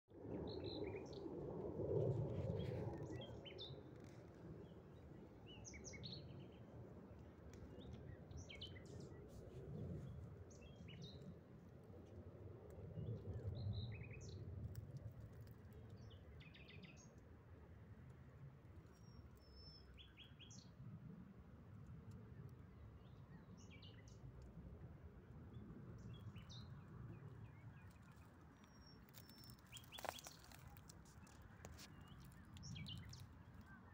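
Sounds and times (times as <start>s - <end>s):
small birds chirping: 26.1s - 33.9s.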